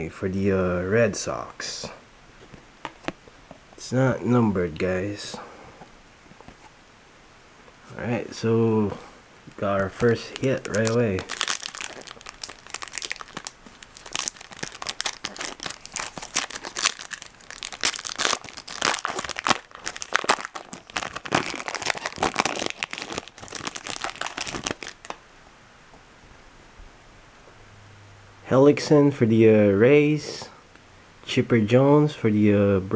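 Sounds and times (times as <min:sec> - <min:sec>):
foil wrapper crinkling and tearing: 0:09.7 - 0:25.2.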